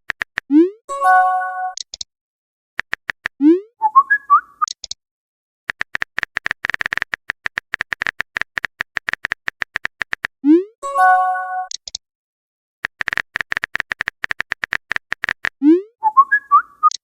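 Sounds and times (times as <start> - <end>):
phone keyboard typing clicks: 0.0 - 0.5, 2.8 - 3.4, 5.7 - 10.3, 12.8 - 15.6
chime-like notification tone: 0.9 - 1.8, 10.8 - 11.7.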